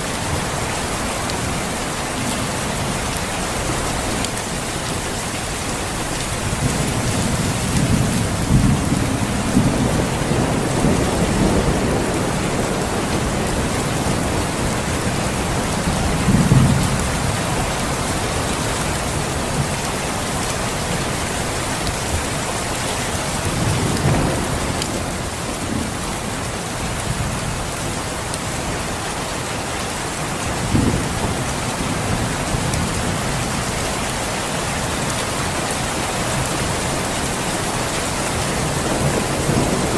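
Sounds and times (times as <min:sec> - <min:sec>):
heavy rain falling: 0:00.0 - 0:39.9
thunder rumbling: 0:06.3 - 0:18.3, 0:38.3 - 0:39.9.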